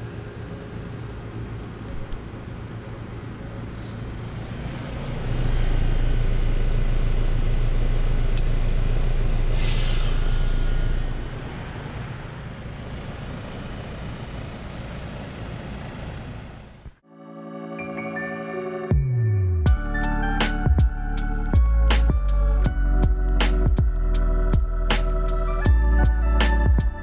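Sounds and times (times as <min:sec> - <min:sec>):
short hiss: 0:09.5 - 0:11.2.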